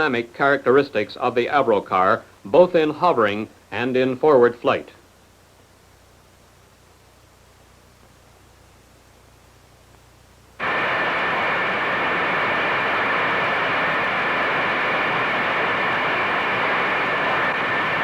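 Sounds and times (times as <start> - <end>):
high whining tones: 10.6 - 18.0.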